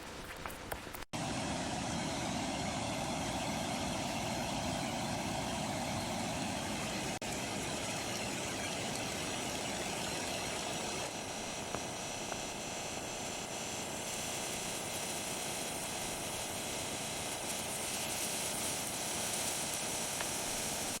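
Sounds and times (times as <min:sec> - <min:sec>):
food sizzling in a pan: 0:03.0 - 0:21.0
faint ticks and pops: 0:07.3 - 0:12.6, 0:17.5 - 0:20.9.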